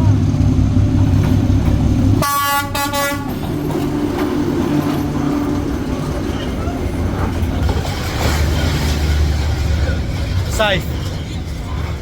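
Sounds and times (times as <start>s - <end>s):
low locomotive engine rumble: 0.0s - 12.0s
train horn blast: 2.2s - 3.4s.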